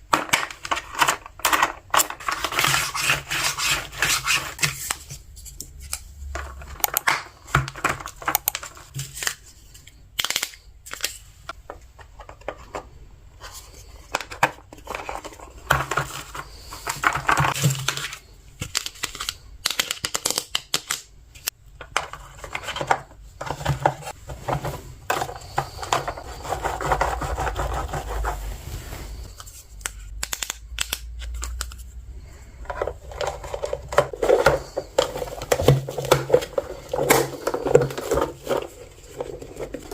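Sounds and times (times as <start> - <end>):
plastic pieces clicking: 0.1 - 2.7, 10.2 - 11.2, 14.1 - 23.0, 29.4 - 31.8
rustling: 23.8 - 30.1.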